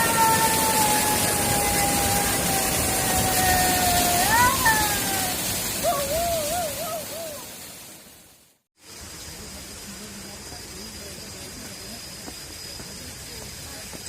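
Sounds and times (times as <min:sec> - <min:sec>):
waterfall rushing: 0:00.0 - 0:11.1.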